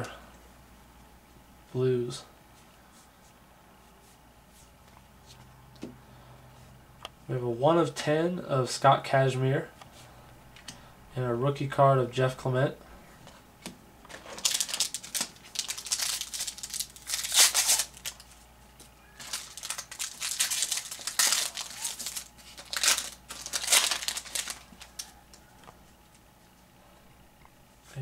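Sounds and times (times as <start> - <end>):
card pack wrappers crinkling: 14.1 - 25.4.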